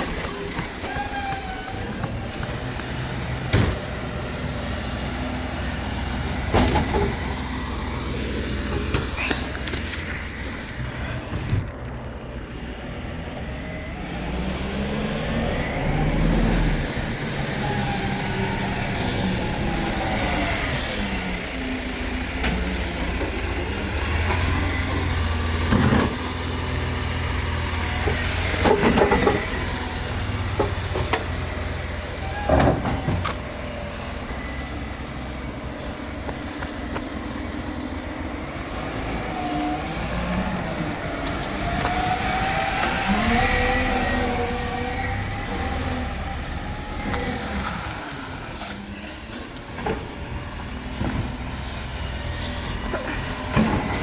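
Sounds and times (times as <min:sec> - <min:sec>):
rubbish truck engine running: 0:00.0 - 0:54.0
loud knocks and clanks: 0:03.4 - 0:04.0.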